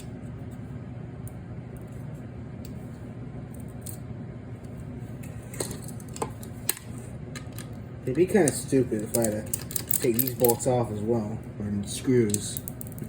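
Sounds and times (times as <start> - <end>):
steady low hum: 0.0 - 13.0
screwdriver and metal parts clicking: 9.0 - 10.7.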